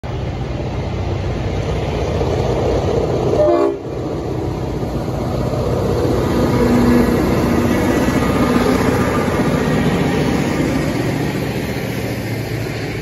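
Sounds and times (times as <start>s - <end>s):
diesel locomotive engine rumble: 0.0s - 13.0s
train horn blast: 3.3s - 4.0s.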